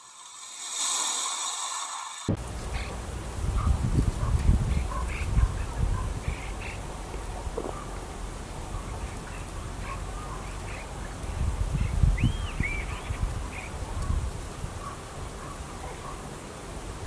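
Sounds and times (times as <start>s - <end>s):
small birds chirping: 2.4s - 16.2s
arched whistled bird calls: 11.8s - 13.7s.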